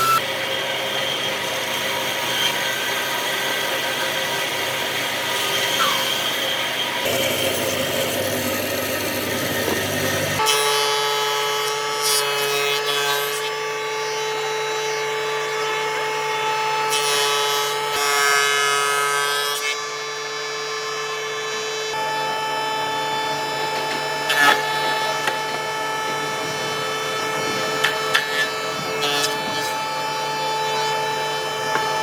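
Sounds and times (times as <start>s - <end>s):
power tool motor whine: 0.0s - 16.9s, 19.6s - 32.0s
tool scraping wood: 5.2s - 10.6s, 23.4s - 32.0s.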